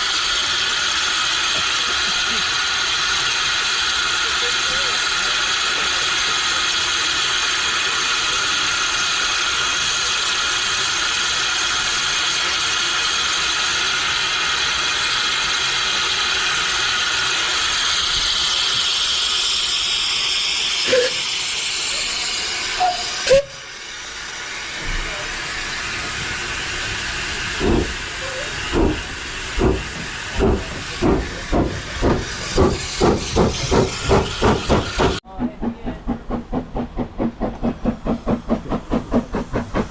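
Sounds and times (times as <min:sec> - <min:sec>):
steam locomotive hissing: 0:00.0 - 0:39.9
locomotive exhaust beats: 0:24.8 - 0:39.9.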